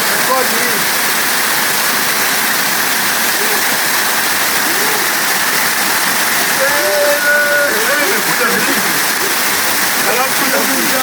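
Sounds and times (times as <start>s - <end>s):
waterfall roaring: 0.0s - 11.0s
faint voices: 3.1s - 11.0s
person calling: 4.5s - 5.4s, 6.5s - 11.0s.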